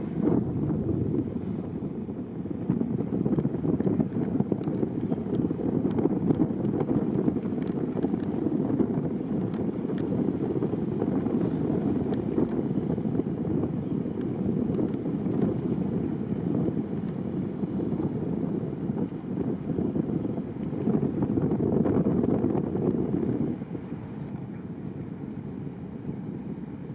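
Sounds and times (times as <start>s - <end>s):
boat and water rumble: 0.0s - 26.9s
wind buffeting microphone: 0.0s - 26.9s.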